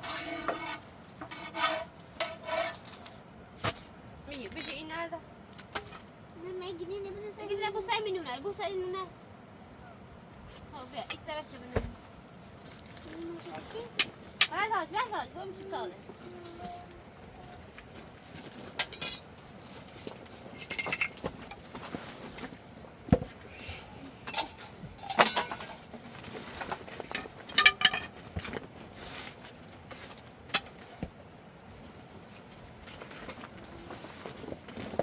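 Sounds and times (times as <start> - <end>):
dishes and utensils clinking: 4.3 - 4.8, 18.8 - 19.4, 20.6 - 21.6, 24.2 - 25.9, 27.1 - 28.3.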